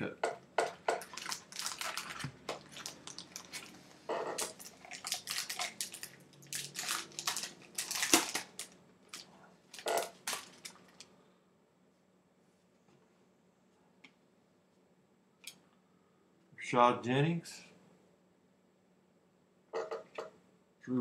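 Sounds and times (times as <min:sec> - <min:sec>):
foil wrapper crinkling and tearing: 0:01.0 - 0:03.8, 0:04.4 - 0:11.1.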